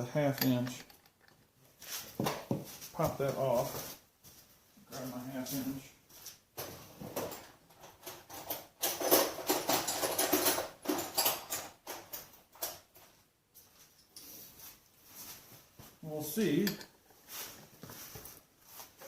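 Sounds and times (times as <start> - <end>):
rummaging among metal tools: 0.0 - 2.1, 6.6 - 13.1, 16.1 - 19.0.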